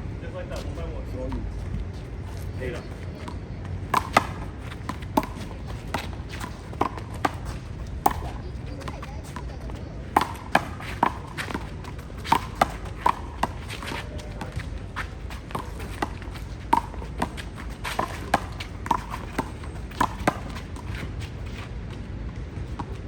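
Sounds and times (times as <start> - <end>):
handball hitting wall and court: 3.2 - 21.2.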